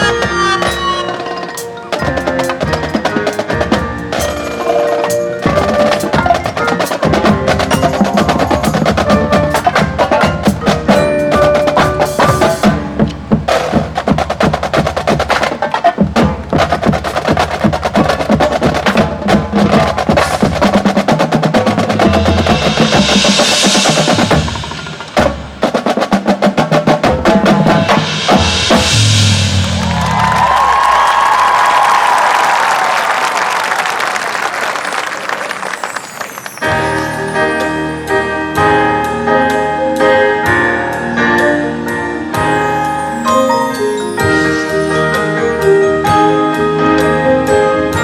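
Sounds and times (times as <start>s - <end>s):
mallet keyboards: 0.0s - 29.1s, 35.8s - 48.0s
marching band drums: 0.0s - 32.1s
cymbal crashes: 27.7s - 30.8s.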